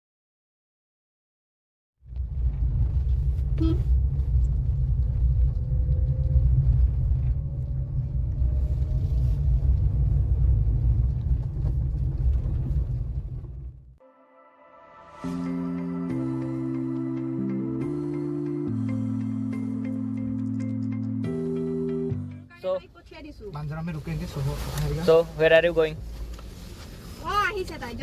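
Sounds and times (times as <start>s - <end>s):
car engine and road rumble: 2.0s - 14.0s, 15.2s - 28.0s
faint rising whine: 3.9s - 10.8s.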